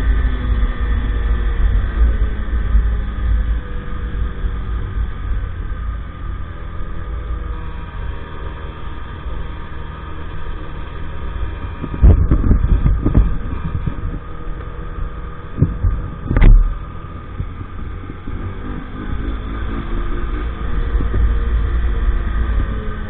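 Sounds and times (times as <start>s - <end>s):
moped engine running: 0.0s - 23.0s
heavy low thumps: 11.8s - 18.3s.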